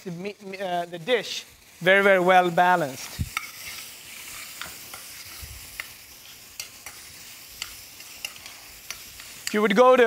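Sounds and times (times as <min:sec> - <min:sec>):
meat and onions sizzling in pan: 0:00.0 - 0:10.0
spoon clicking against pan: 0:06.6 - 0:09.6.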